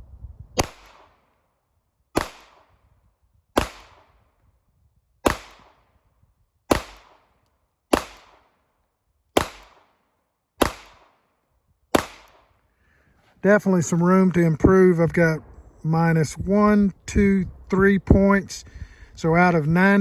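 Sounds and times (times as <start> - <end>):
handgun shots: 6.7 - 7.3, 7.9 - 8.4, 9.4 - 10.0, 10.6 - 11.2, 11.9 - 12.5.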